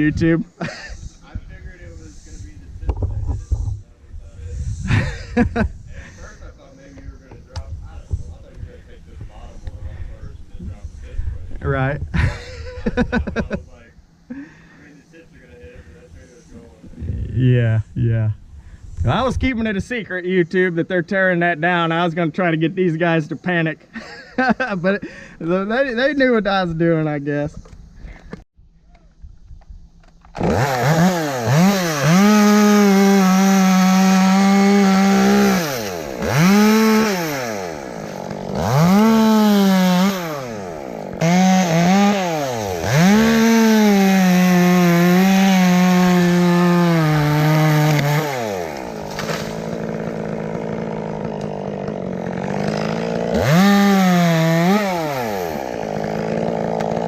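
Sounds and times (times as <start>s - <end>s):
chainsaw revving: 30.3s - 57.0s.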